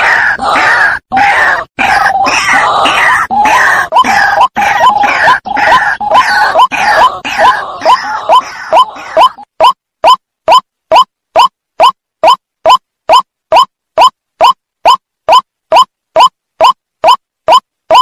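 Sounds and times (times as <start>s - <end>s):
waterhen calling: 0.4s - 12.4s.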